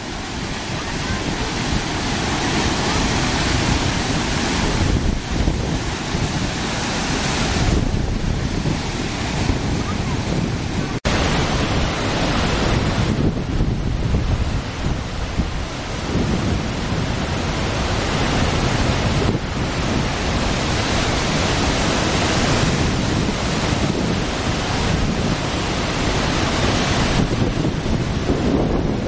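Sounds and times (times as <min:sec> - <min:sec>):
waterfall rushing: 0:00.0 - 0:29.0
wind buffeting microphone: 0:00.0 - 0:29.0.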